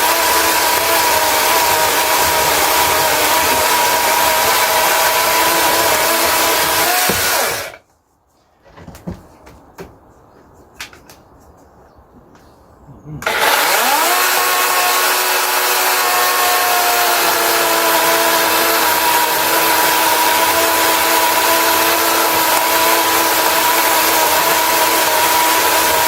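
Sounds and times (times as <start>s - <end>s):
electric chainsaw motor whine: 0.0s - 7.8s, 13.2s - 26.0s.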